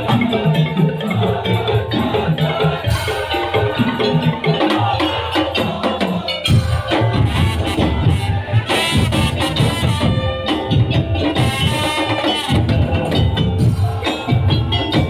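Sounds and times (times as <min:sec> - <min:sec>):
percussion ensemble music: 0:00.0 - 0:15.0
pitched melodic instruments: 0:00.0 - 0:15.0.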